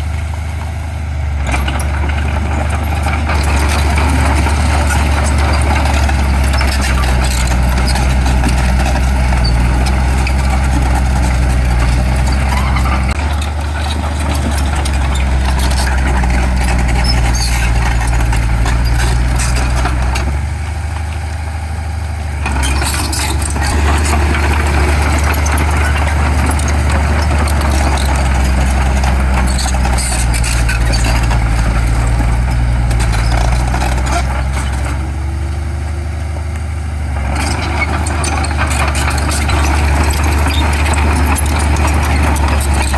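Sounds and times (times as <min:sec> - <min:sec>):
heavy diesel engine running: 0:00.0 - 0:42.9.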